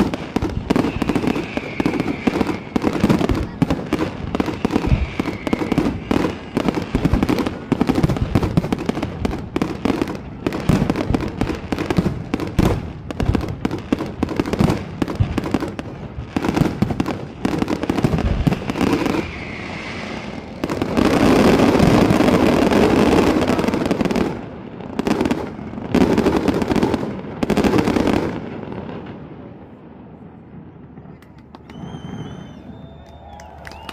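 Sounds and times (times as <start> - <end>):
falling firework whistle: 0.0 - 8.9, 17.5 - 23.5, 31.5 - 33.9
fireworks bangs and crackles: 0.0 - 33.9.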